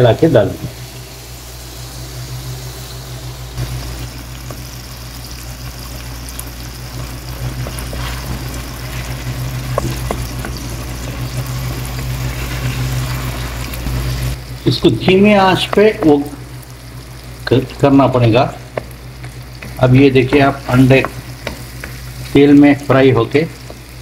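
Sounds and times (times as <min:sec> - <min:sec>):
eggs sizzling in a wok: 0:00.0 - 0:24.0
steady low hum: 0:00.0 - 0:24.0
spatula knocking against pan: 0:18.7 - 0:22.0.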